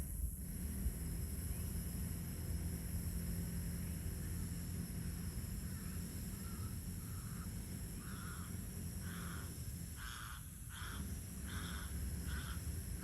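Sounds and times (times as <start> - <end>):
bird calling: 5.7 - 12.7.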